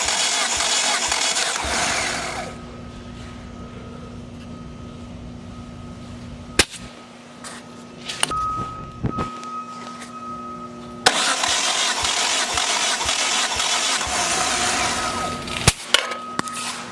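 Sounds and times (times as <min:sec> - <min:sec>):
engine cranking by starter: 0:00.0 - 0:02.8, 0:11.0 - 0:15.9
low steady hum: 0:00.0 - 0:16.9.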